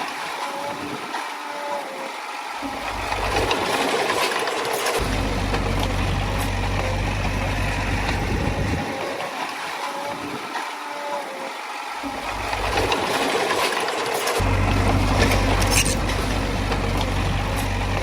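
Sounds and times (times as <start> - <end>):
diesel engine running: 2.6 - 9.1, 12.0 - 18.0.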